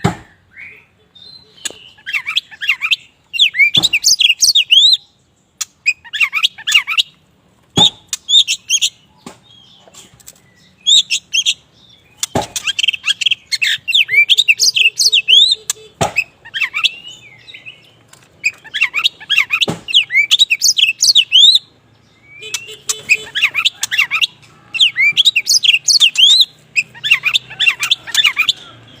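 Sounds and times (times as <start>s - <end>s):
bird singing whistles and chirps: 0.2s - 5.1s, 10.5s - 28.8s.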